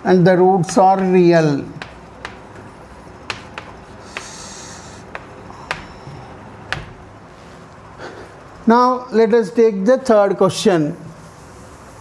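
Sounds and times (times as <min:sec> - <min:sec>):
pen tapping on surface: 0:00.7 - 0:06.1, 0:06.7 - 0:07.0
pen scratching stroke: 0:03.3 - 0:06.0.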